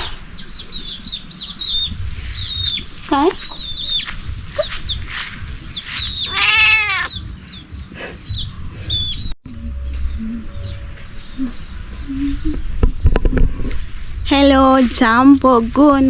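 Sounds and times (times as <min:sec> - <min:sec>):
small birds chirping: 0:00.0 - 0:16.0
cat meowing: 0:06.2 - 0:07.2.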